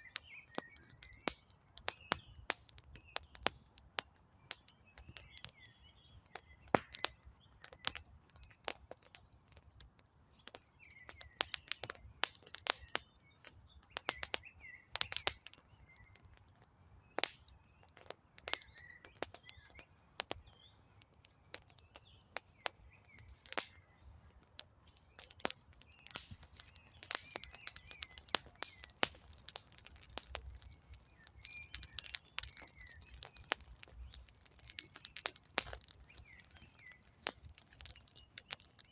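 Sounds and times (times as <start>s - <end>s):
small birds chirping: 0.0s - 38.9s
wood fire crackling: 0.0s - 38.9s.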